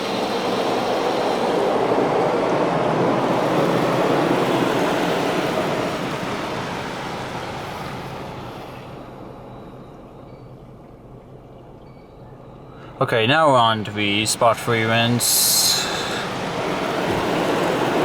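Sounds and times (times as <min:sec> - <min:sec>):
car wash spray rushing: 0:00.0 - 0:08.9, 0:13.1 - 0:18.0.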